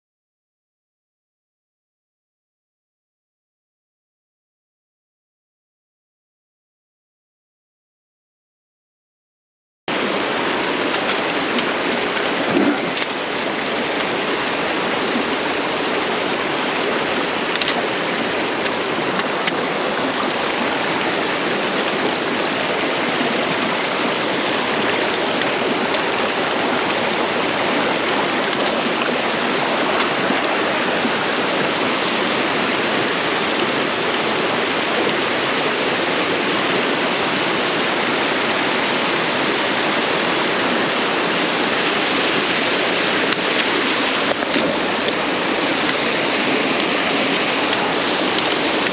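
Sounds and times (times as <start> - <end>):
creek water rushing over rock: 9.9 - 48.9.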